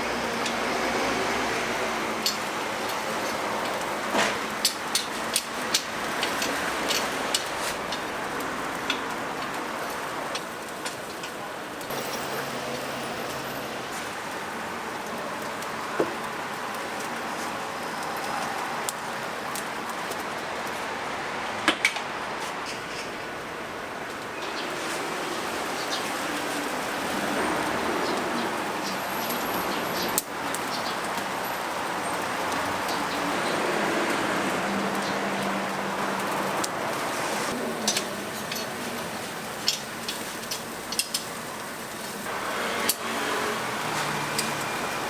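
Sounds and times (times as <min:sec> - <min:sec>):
steady kitchen hiss: 0:00.0 - 0:45.0.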